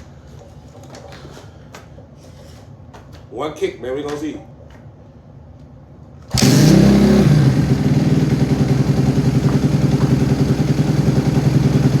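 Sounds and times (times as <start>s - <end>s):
dirt bike engine kick start: 6.3s - 11.2s
dirt bike engine idling: 6.3s - 12.0s.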